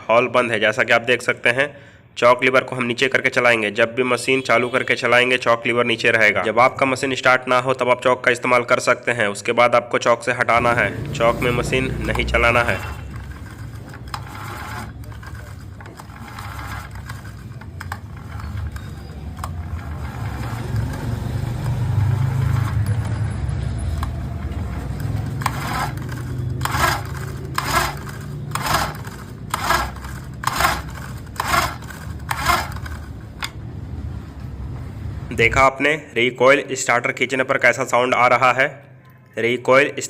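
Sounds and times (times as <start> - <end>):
engine turning over without firing: 10.6 - 33.6
recoil starter being pulled: 10.6 - 33.6
handling noise: 11.5 - 33.7.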